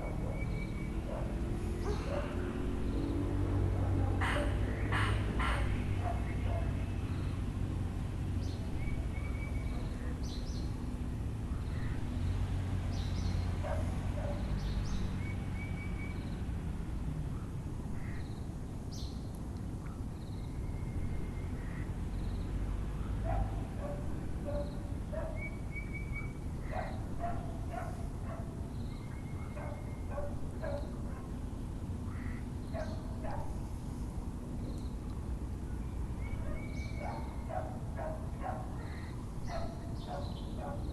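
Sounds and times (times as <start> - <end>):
dog barking in distance: 0.0 - 2.6, 3.7 - 6.8, 13.6 - 14.5, 23.0 - 25.5, 26.6 - 28.6, 29.2 - 31.4, 32.8 - 33.6, 36.4 - 40.9
birds calling: 0.0 - 3.4, 4.0 - 7.5, 19.9 - 31.4, 32.0 - 33.6, 35.7 - 40.9.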